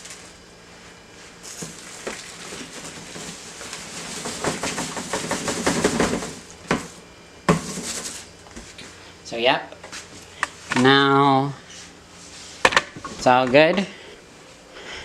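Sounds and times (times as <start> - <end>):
tray knocking against trash bin: 4.1 - 8.1.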